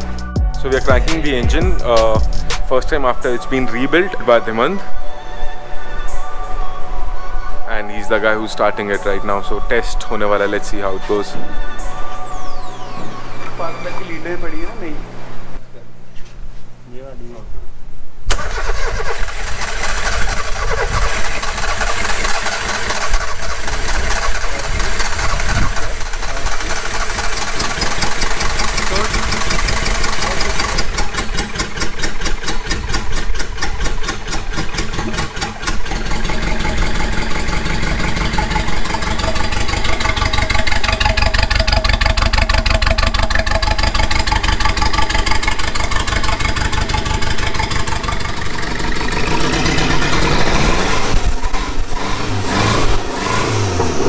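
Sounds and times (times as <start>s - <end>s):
engine idling: 18.3s - 54.0s.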